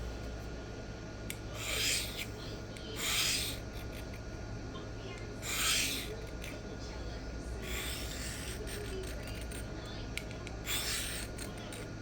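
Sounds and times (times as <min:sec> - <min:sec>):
knife blade rasping scrapes: 0:01.6 - 0:04.2, 0:05.4 - 0:06.6, 0:07.6 - 0:09.7, 0:10.6 - 0:11.8.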